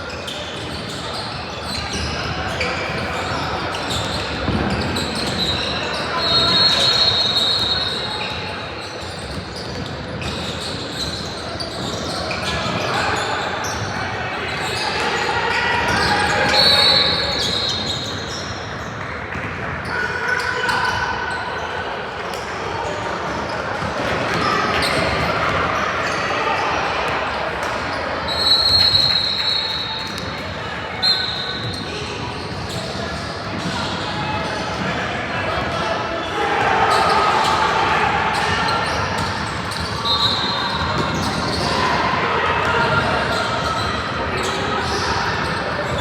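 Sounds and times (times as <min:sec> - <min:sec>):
crowd noise: 0:00.0 - 0:46.0
whistle blast: 0:28.3 - 0:30.0
basketball bouncing on court: 0:38.4 - 0:41.7.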